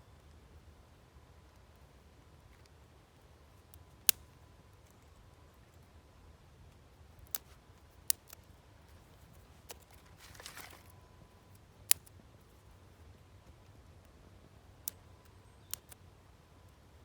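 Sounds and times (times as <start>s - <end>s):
soft rustle: 7.4s - 11.6s.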